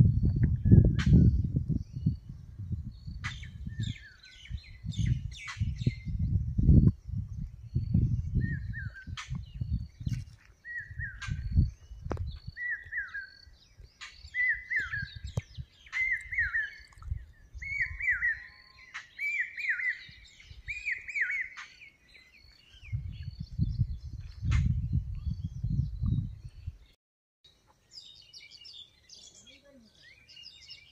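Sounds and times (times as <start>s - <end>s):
birds chirping in background: 0.0s - 30.9s.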